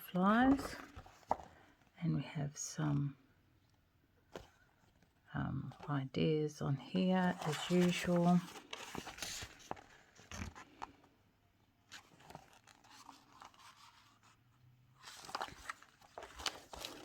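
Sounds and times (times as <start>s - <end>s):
packaging and paper rustling: 0.1s - 1.7s, 7.0s - 11.1s, 11.9s - 17.0s.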